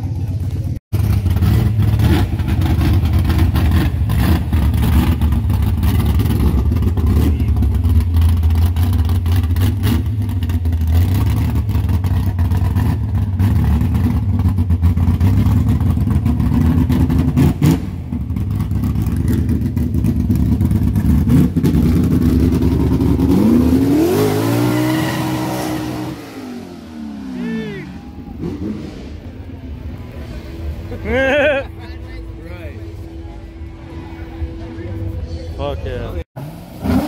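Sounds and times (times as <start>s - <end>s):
car engine revving: 0.1s - 37.0s.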